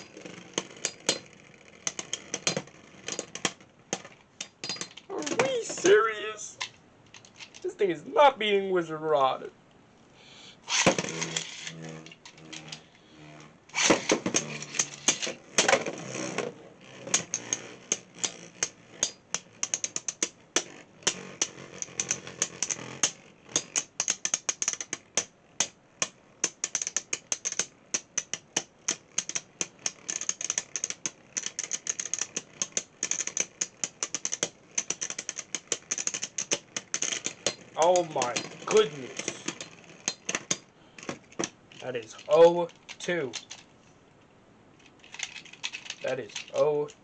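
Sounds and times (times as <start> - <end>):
spinning top launch burst: 10.6 - 19.1
spinning tops clashing: 10.7 - 12.9, 13.7 - 25.7, 26.4 - 40.7.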